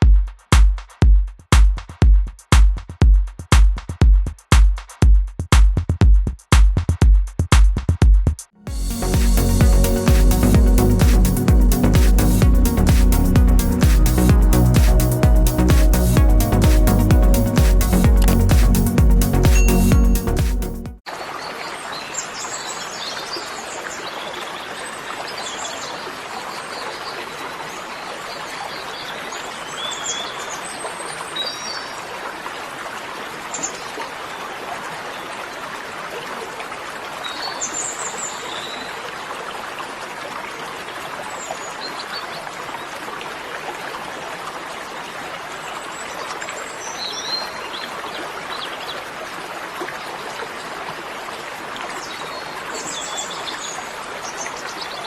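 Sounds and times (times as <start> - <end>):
steady rushing hiss: 8.7 - 19.6.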